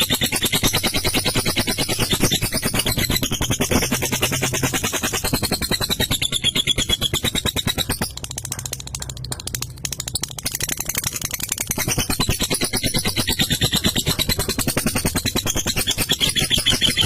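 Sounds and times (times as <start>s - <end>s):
lovebird chattering trill: 0.0s - 17.0s.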